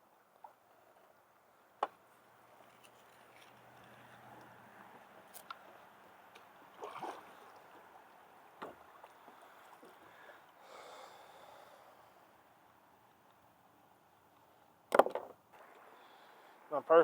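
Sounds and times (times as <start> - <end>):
soft wash of water: 3.6 - 13.1
paddle splashing water: 5.6 - 10.7.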